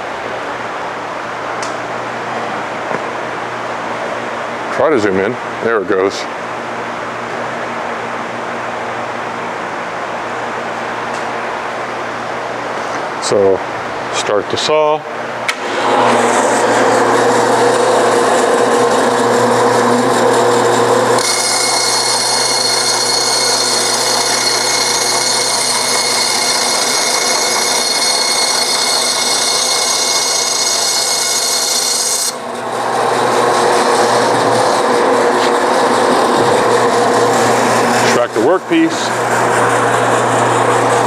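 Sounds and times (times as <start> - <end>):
bandsaw cutting foam: 15.6 - 32.4
high steady tones: 21.2 - 32.4.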